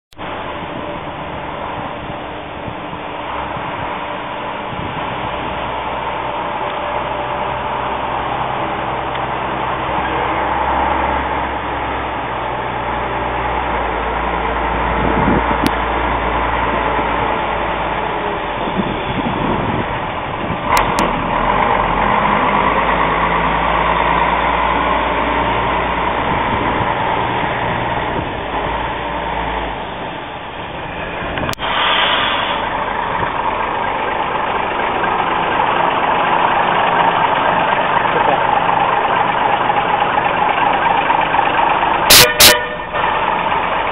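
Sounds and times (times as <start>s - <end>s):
truck engine running: 0.1s - 43.9s
brief hiss: 31.5s - 32.8s.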